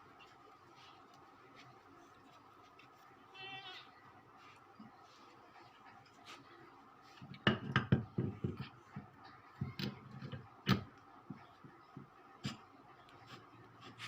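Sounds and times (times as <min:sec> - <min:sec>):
tools and metal parts knocking: 0:07.4 - 0:10.9.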